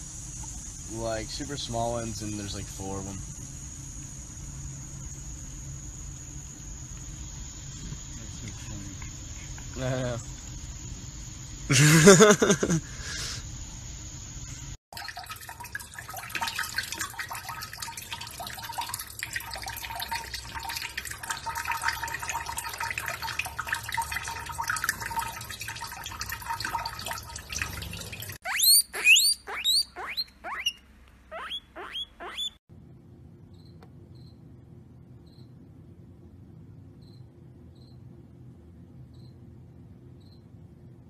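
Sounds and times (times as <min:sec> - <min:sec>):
tap water running into hands: 0:15.0 - 0:28.4
guinea pig squeaking: 0:28.4 - 0:32.6.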